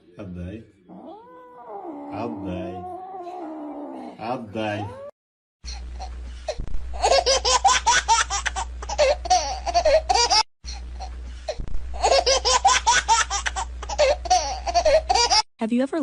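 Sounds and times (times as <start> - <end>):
baby giggling: 7.0 - 10.4, 12.0 - 15.4.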